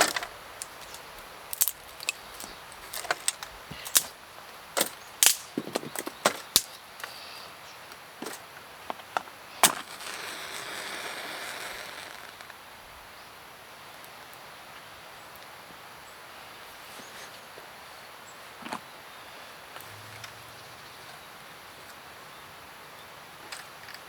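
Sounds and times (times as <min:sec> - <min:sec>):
sharp snaps or knocks: 0:00.0 - 0:04.1, 0:05.2 - 0:05.6
rustling hiss: 0:00.0 - 0:18.4.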